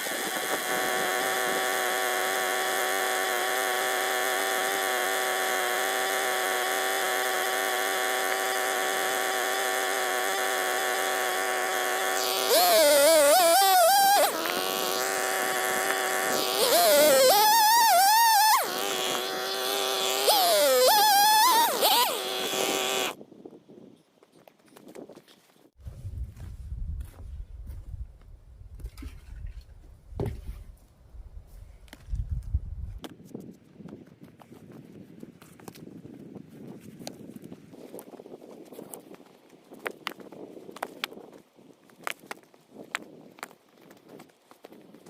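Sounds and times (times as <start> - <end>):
small engine running: 0.0 - 23.2.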